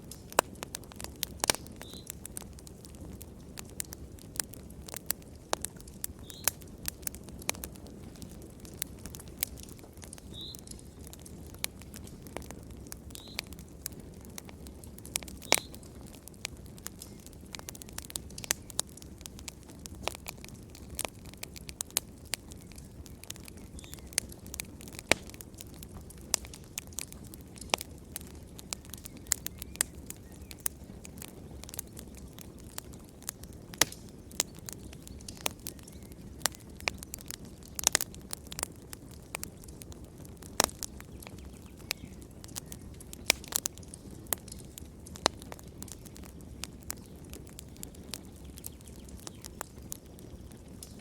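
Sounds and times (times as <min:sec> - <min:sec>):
low rumble of burning: 0:00.0 - 0:51.0
wood fire crackling and popping: 0:00.0 - 0:51.0.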